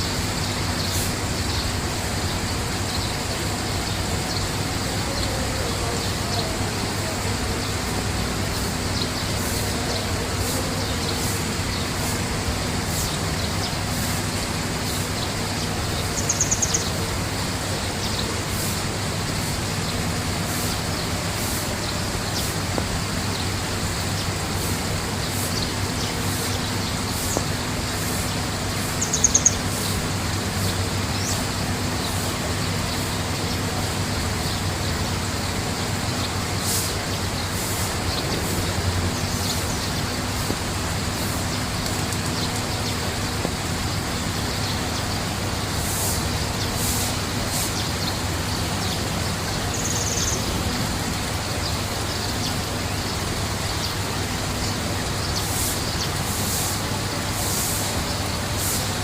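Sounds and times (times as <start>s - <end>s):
small bird trilling: 16.2s - 16.9s, 28.8s - 29.9s.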